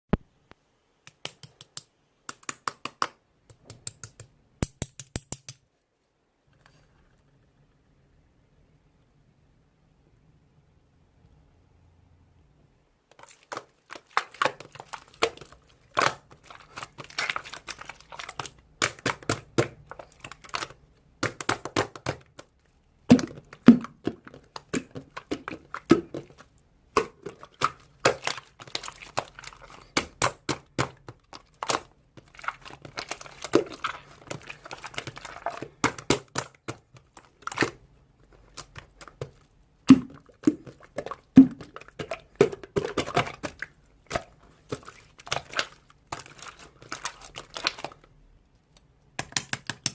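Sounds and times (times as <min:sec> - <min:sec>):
slime squished by hand: 0:13.1 - 0:49.9.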